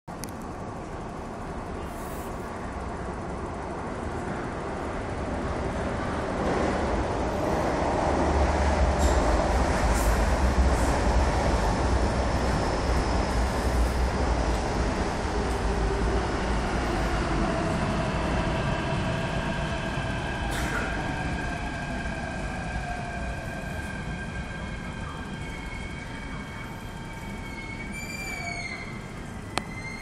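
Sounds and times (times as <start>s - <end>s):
train rumble: 0.1s - 30.0s
faint steady whine: 21.4s - 27.9s
high squeals: 22.0s - 30.0s.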